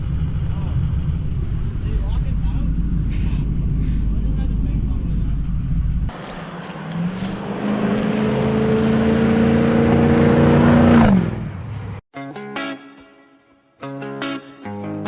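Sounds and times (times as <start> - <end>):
engine accelerating: 0.0 - 12.0.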